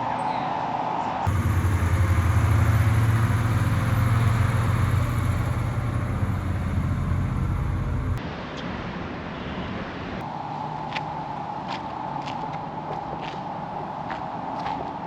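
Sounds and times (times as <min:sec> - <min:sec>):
vehicle engine rumbling: 0:01.3 - 0:08.2
street background: 0:01.3 - 0:08.4.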